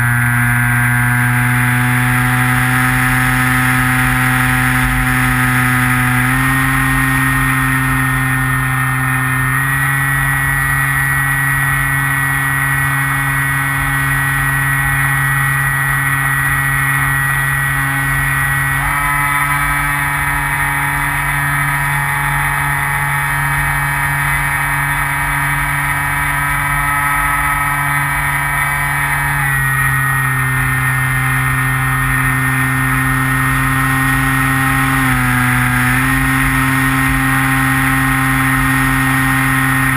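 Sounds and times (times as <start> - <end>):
model plane motor drone: 0.0 - 39.9.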